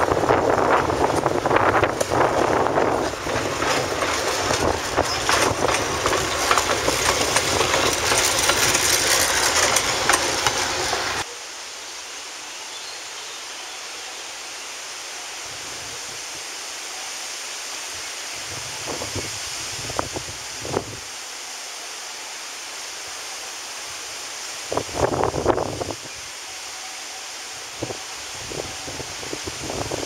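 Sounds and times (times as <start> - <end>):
wind noise: 0.0 - 11.2, 18.0 - 21.1, 24.7 - 26.3, 27.6 - 30.0
train wheels clattering on rails: 0.4 - 11.2.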